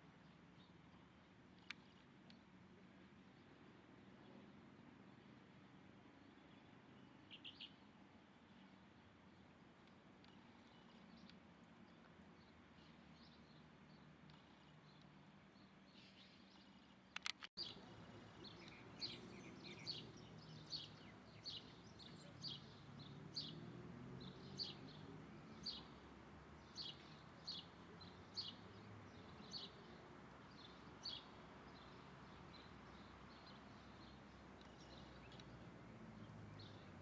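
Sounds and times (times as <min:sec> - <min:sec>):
faint outdoor background: 0:00.0 - 0:37.0
bird chirping: 0:06.2 - 0:07.9, 0:10.2 - 0:37.0
sharp clicks: 0:17.1 - 0:17.8.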